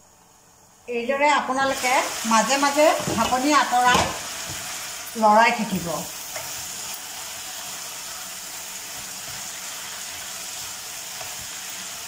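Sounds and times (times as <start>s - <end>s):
food sizzling in oil: 0.0s - 12.0s
spatula stirring food: 6.1s - 12.0s.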